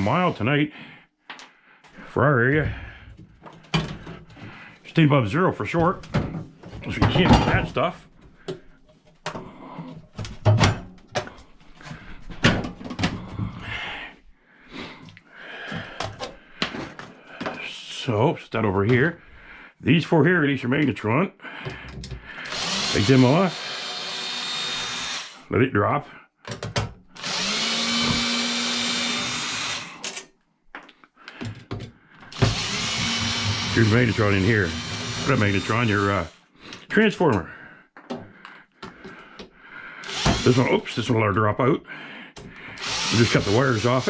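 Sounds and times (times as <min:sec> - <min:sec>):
power drill spinning: 0:22.4 - 0:25.5, 0:27.2 - 0:30.2, 0:32.2 - 0:36.5, 0:40.0 - 0:40.9, 0:42.7 - 0:44.0.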